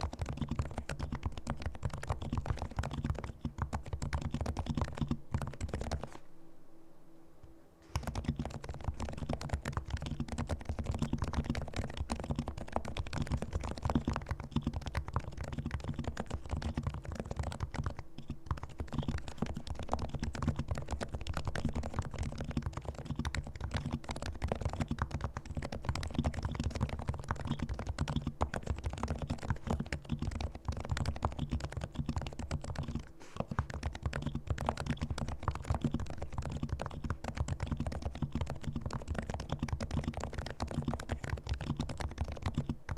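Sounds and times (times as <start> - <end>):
soft keyboard typing: 0.0 - 6.2, 7.9 - 42.9.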